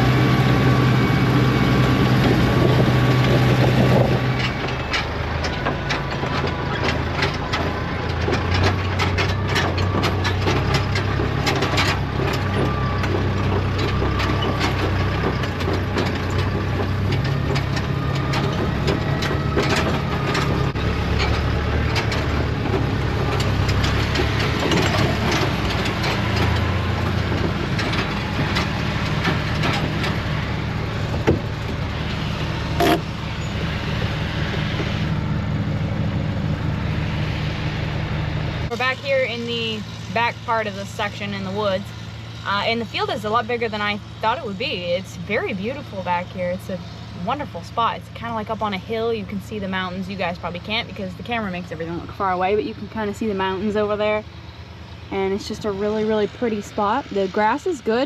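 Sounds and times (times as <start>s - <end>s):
tractor engine running under load: 0.0s - 58.0s.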